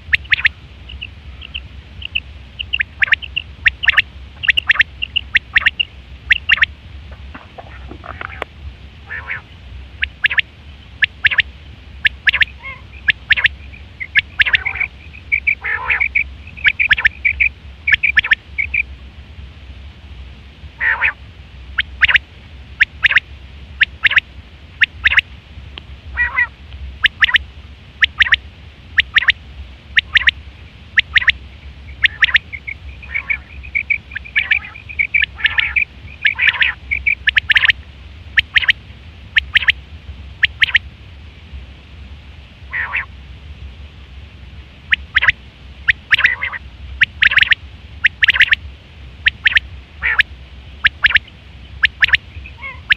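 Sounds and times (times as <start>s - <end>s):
quail calling: 0.0s - 6.7s, 7.4s - 18.9s, 20.8s - 21.2s, 21.8s - 22.2s, 22.8s - 23.2s, 23.8s - 24.2s, 24.8s - 25.2s, 26.1s - 27.4s, 28.0s - 28.4s, 29.0s - 37.8s, 38.4s - 38.8s, 39.4s - 39.8s, 40.4s - 40.8s, 42.7s - 43.1s, 44.9s - 48.6s, 49.2s - 52.9s
faint low hum: 0.0s - 52.9s.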